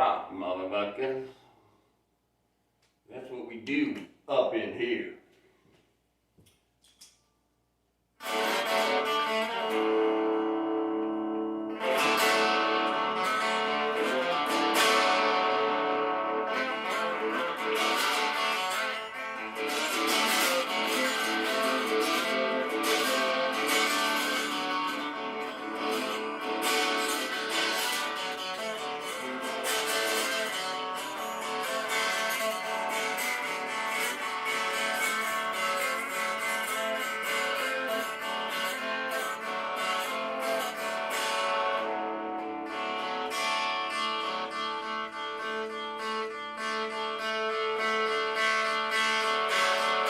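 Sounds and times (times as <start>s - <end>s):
guitar strumming and picking: 8.2s - 50.0s.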